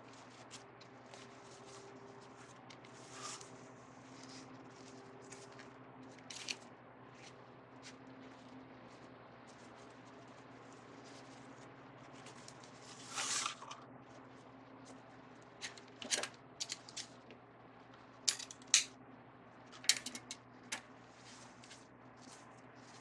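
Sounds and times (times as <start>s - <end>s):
scissors snipping: 18.3s - 18.9s.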